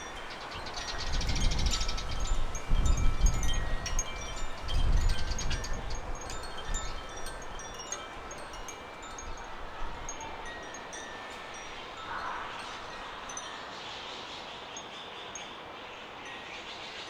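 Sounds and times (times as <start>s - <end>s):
wind rumbling on microphone: 0.0s - 13.6s
wind chime tinkling: 0.0s - 16.7s.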